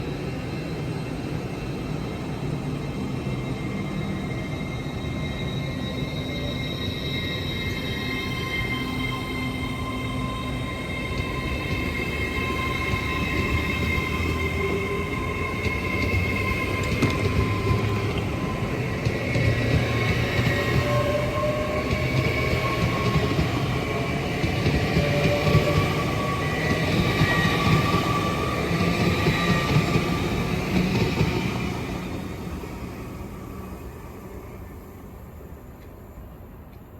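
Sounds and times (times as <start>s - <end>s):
electric train rumble: 0.0s - 36.9s
high-pitched train whine: 0.0s - 36.9s.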